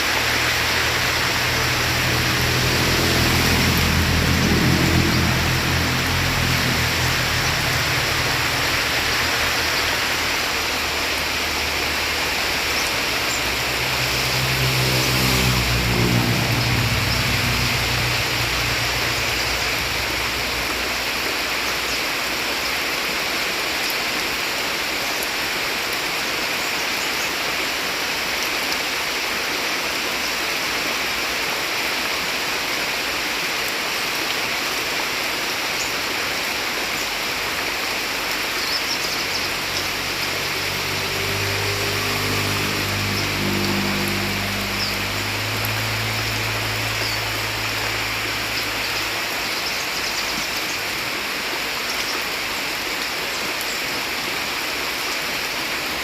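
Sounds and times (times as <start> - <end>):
vehicle engine passing: 0.0 - 21.6, 39.1 - 49.5
heavy rain pouring: 0.0 - 56.0
running water rushing: 0.0 - 56.0.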